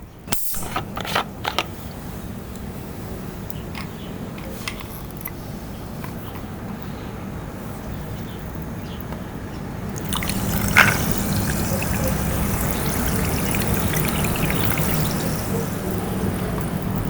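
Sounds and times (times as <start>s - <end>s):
liquid pouring: 9.9s - 17.0s.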